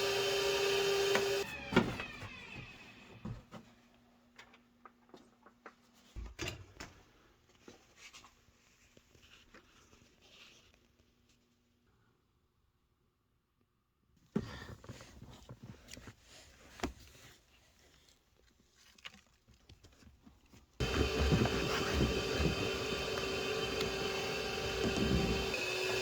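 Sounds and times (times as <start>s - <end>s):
motor winding down: 0.0s - 2.8s, 20.8s - 26.0s.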